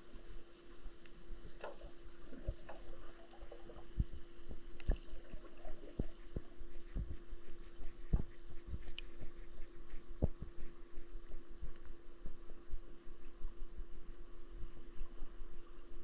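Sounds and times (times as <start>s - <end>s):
underwater hum: 0.0s - 16.0s
faint clicks: 8.8s - 9.1s.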